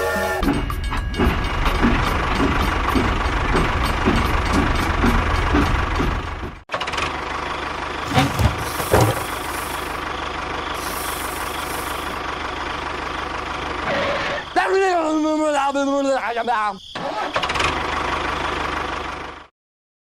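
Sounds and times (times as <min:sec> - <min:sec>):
motor chugging: 0:08.0 - 0:12.2
knocks: 0:08.1 - 0:09.4
short bursts of hiss: 0:10.8 - 0:12.2.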